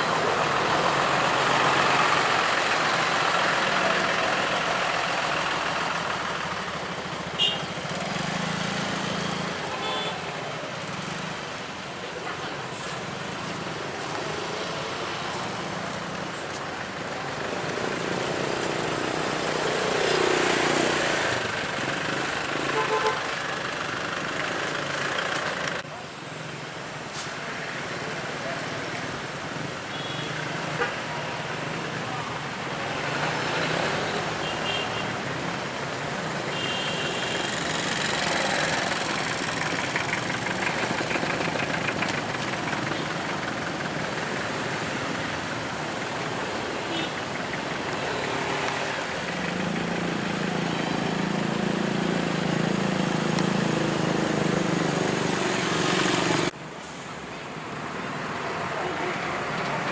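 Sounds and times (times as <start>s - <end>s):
vehicle engine running: 37.4s - 46.4s.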